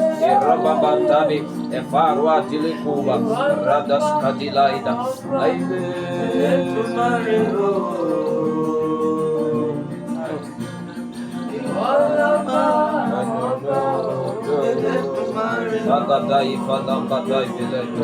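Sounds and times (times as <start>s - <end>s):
guitar: 0.0s - 18.0s
keyboard: 0.0s - 18.0s
person singing gospel: 0.0s - 18.0s.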